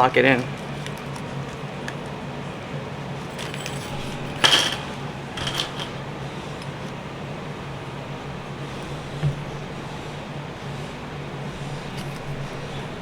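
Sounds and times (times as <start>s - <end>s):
steady low hum: 0.0s - 13.0s
small metal parts clinking: 3.2s - 7.0s.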